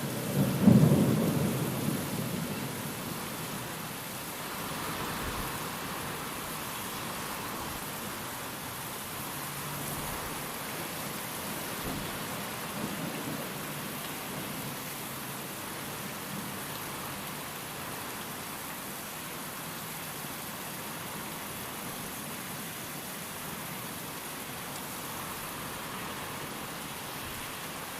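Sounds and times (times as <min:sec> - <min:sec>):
steady rain: 0:00.0 - 0:27.9
wind: 0:00.0 - 0:27.9
distant thunder rumble: 0:00.3 - 0:03.2.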